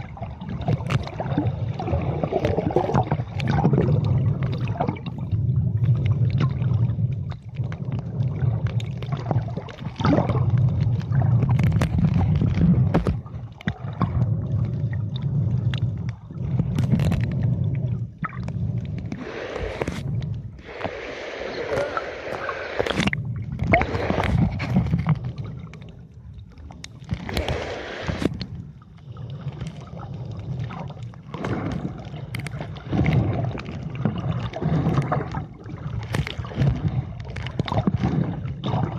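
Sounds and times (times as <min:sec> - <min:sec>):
water sloshing and gurgling: 0:00.0 - 0:38.9
water splashing: 0:00.0 - 0:38.9
low rumble: 0:10.2 - 0:34.3.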